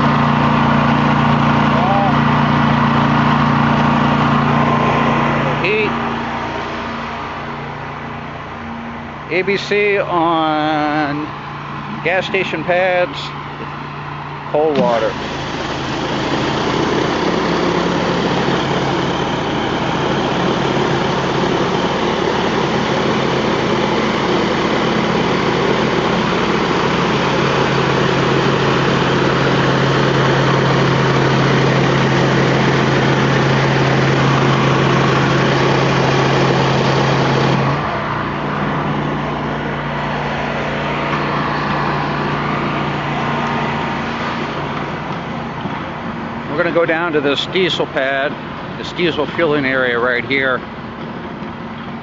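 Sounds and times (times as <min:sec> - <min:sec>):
pressure washer engine running: 0:00.0 - 0:52.0
high-pressure spray hissing on concrete: 0:15.0 - 0:19.0.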